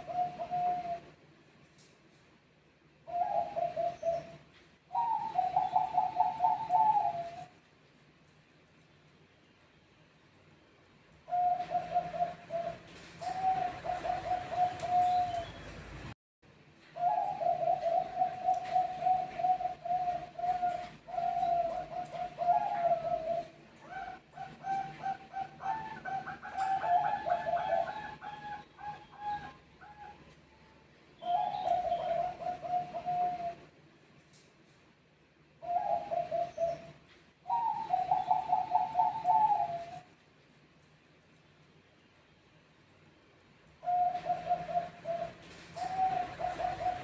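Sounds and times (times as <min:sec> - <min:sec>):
dove cooing: 0:00.0 - 0:01.2, 0:03.0 - 0:07.6, 0:11.2 - 0:15.6, 0:17.0 - 0:30.4, 0:31.2 - 0:33.7, 0:35.6 - 0:40.1, 0:43.8 - 0:47.0.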